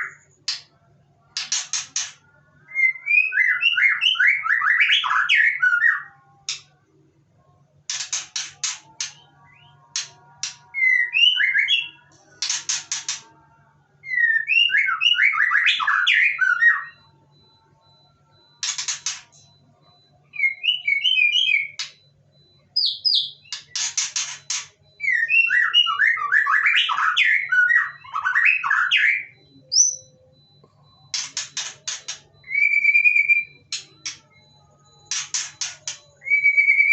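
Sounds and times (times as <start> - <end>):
harsh clicking bird notes: 7.9 - 10.6, 12.4 - 13.3.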